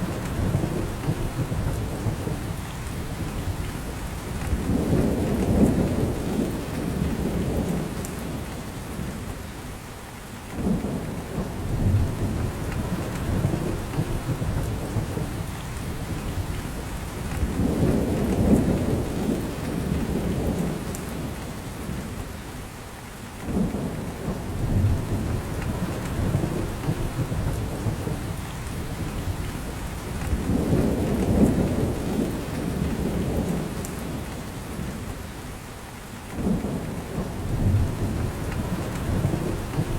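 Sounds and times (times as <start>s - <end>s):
rain falling on forest: 0.0s - 39.9s.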